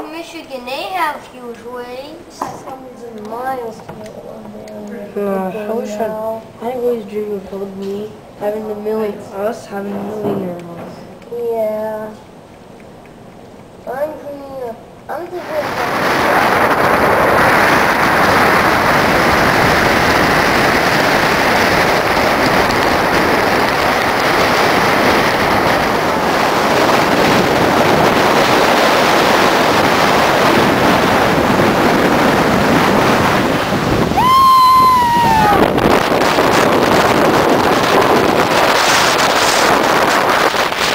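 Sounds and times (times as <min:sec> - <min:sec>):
strong wind on microphone: 0:15.1 - 0:40.9
surf breaking: 0:15.1 - 0:40.9.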